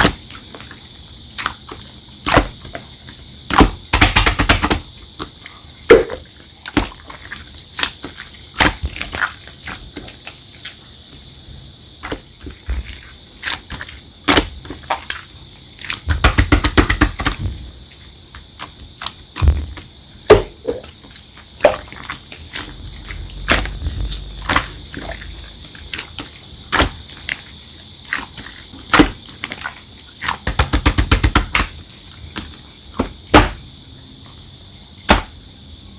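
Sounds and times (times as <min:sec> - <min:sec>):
slime squeezed by hand popping: 0:05.9 - 0:06.2.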